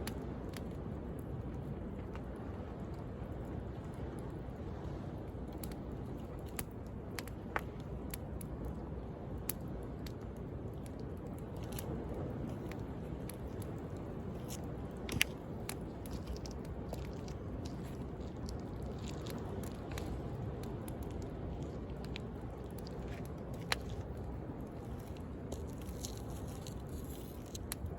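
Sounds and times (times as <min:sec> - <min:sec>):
wood fire crackling and popping: 0:05.2 - 0:27.9
sea waves: 0:11.0 - 0:27.9.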